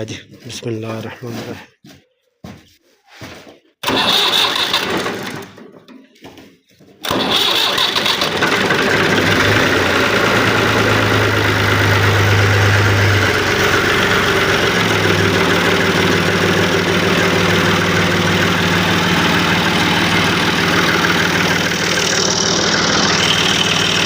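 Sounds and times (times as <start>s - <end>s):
tractor diesel engine idling: 3.8s - 5.8s, 7.0s - 24.0s.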